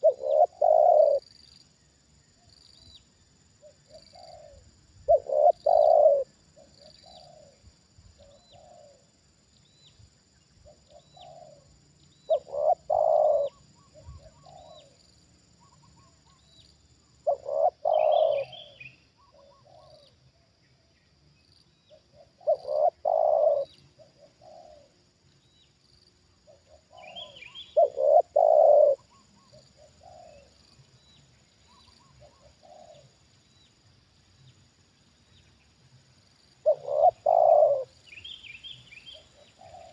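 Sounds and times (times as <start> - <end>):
dove cooing: 0.0 - 1.3, 3.6 - 7.6, 8.2 - 9.1, 10.6 - 11.7, 12.3 - 16.5, 17.2 - 20.1, 21.9 - 24.9, 26.5 - 30.6, 31.7 - 33.2, 36.6 - 39.9.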